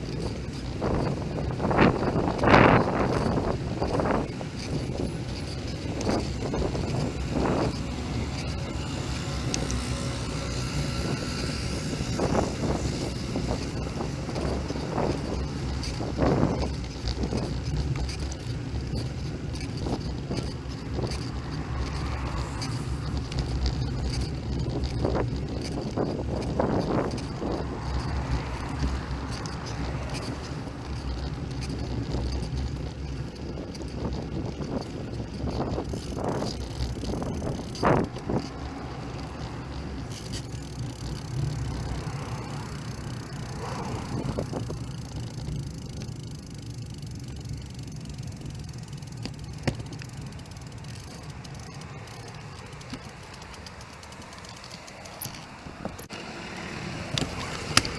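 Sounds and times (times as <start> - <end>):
wind rush: 0.0 - 17.5
bicycle knocks and rattles: 0.0 - 57.9
bicycle road rumble: 0.0 - 57.9.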